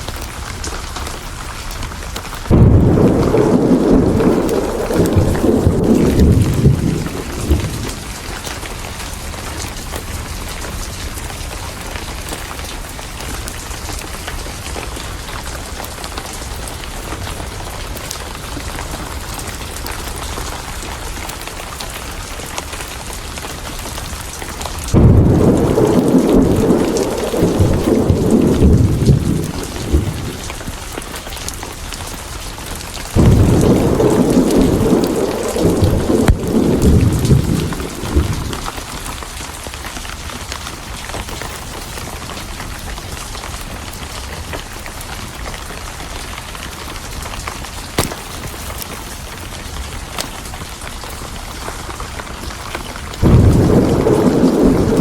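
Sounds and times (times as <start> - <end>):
heavy rain: 0.0 - 55.0
thunder rumbling: 1.9 - 19.2, 24.8 - 31.6, 32.7 - 39.7, 53.1 - 55.0.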